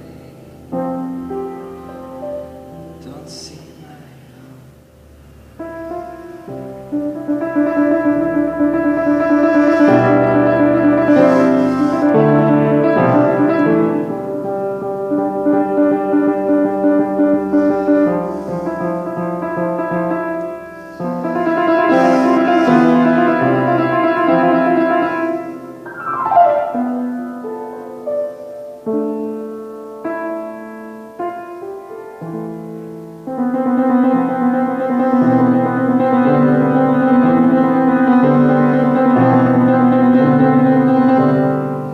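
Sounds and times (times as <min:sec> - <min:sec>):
piano chords: 0:00.0 - 0:41.9.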